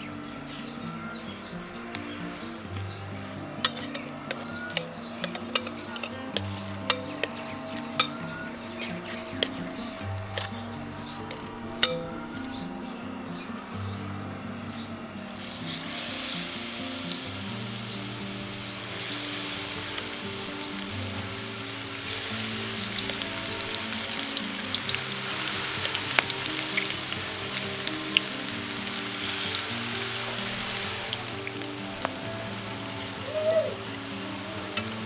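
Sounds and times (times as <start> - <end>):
oil popping: 1.9 - 12.5, 15.3 - 35.0
deep-frying sizzle: 15.3 - 35.0.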